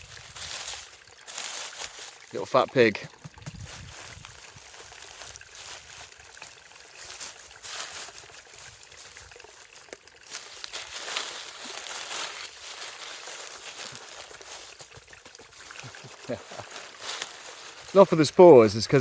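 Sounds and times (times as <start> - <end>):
grass and leaf litter rustling: 0.0 - 19.0.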